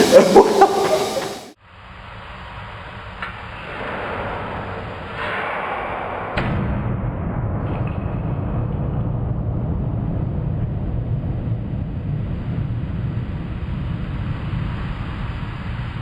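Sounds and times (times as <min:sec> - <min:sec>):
steady low rumble: 0:06.9 - 0:16.0.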